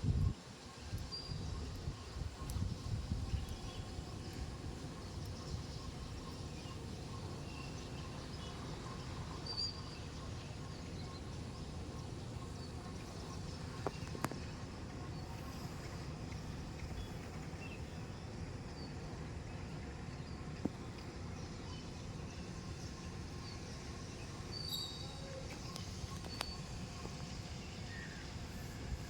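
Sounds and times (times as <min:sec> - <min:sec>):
wind on microphone: 0:00.0 - 0:06.3
faint high chirps: 0:24.5 - 0:28.9.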